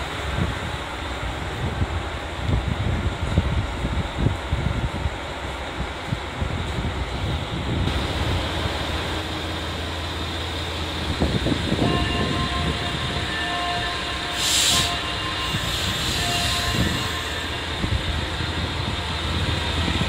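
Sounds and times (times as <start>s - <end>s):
train rumbling: 0.0s - 20.0s
high-pitched wheel squeal: 11.8s - 17.9s.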